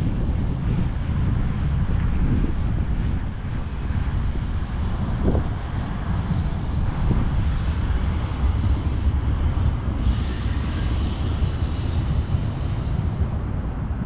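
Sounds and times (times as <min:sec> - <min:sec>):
traffic noise: 0:00.0 - 0:14.0
wind buffeting microphone: 0:00.0 - 0:14.0
hiss of passing traffic: 0:03.0 - 0:14.0.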